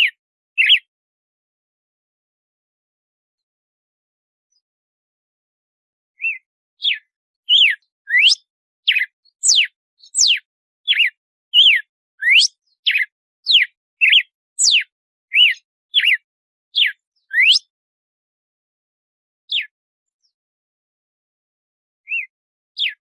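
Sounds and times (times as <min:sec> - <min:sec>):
bird singing whistled notes: 0:00.0 - 0:00.9, 0:06.2 - 0:17.7, 0:19.5 - 0:20.4, 0:22.1 - 0:23.0.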